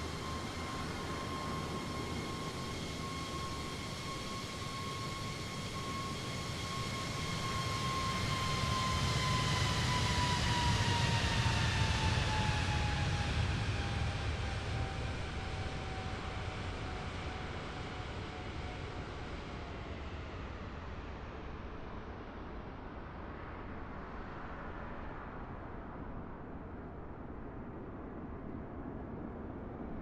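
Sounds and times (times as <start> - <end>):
jet engines passing by: 0.0 - 22.4.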